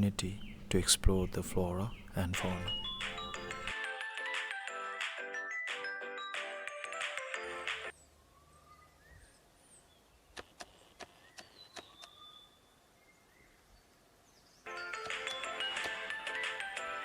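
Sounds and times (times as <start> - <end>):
background music: 0.0 - 7.9, 14.7 - 17.0
whistled bird calls: 0.2 - 3.7, 11.2 - 13.6.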